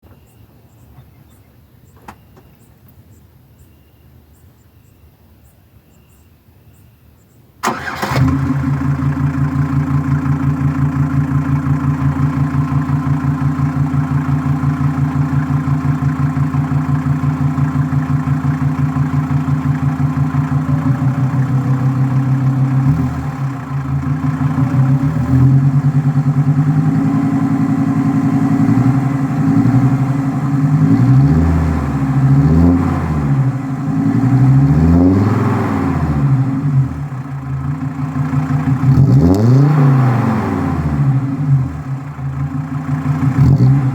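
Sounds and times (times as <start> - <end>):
diesel engine idling: 7.6 - 43.9
diesel engine revving: 7.6 - 43.9.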